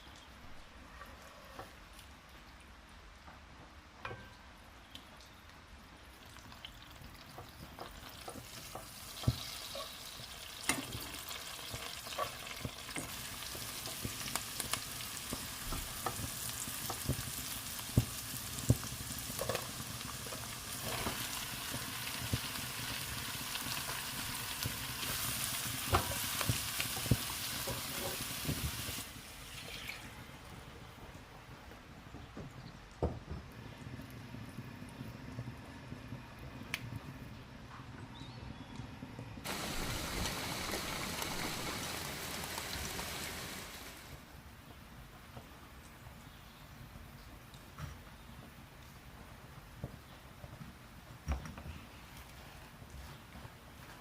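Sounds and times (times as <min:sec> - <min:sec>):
food sizzling in a frying pan: 0:06.3 - 0:30.2, 0:39.4 - 0:44.2.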